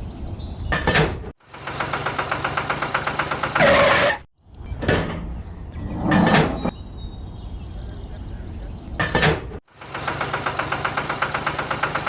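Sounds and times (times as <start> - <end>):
engine running with rapid pulse: 1.4 - 4.1, 9.7 - 12.0.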